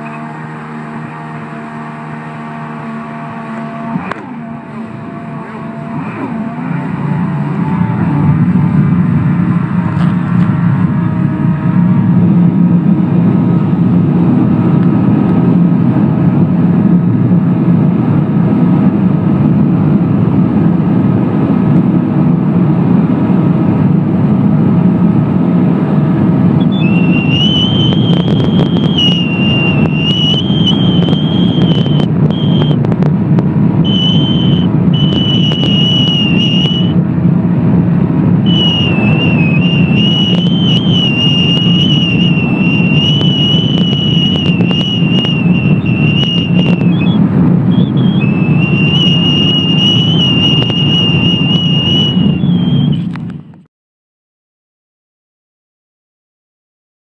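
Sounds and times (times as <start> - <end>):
high wavering whine: 0.0 - 15.7, 26.5 - 53.5
jet ski engine at full throttle: 0.0 - 53.4.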